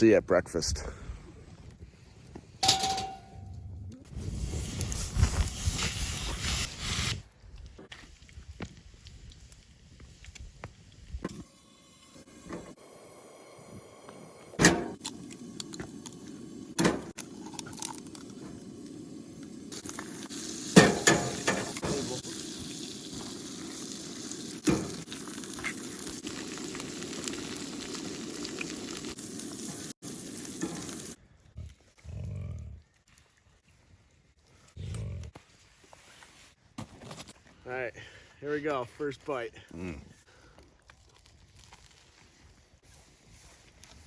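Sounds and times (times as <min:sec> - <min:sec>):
utensil clinking against pan: 0:02.6 - 0:03.4
food sizzling in a pan: 0:17.4 - 0:31.2.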